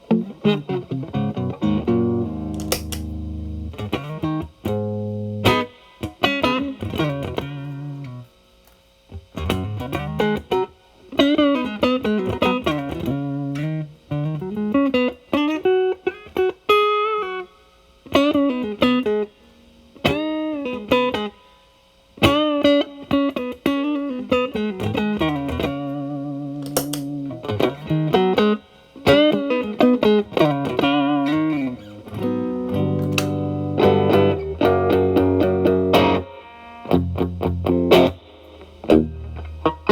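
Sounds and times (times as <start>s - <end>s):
distorted electric guitar lead: 0.1s - 8.2s, 22.2s - 39.9s
guitar chords ringing: 0.1s - 8.2s, 22.2s - 39.9s.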